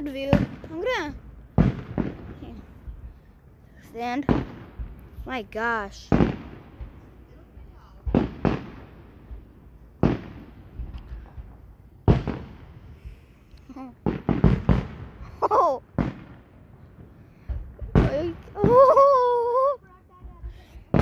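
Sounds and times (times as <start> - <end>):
fireworks bursting with echoing bangs: 0.0 - 13.3, 13.9 - 21.0.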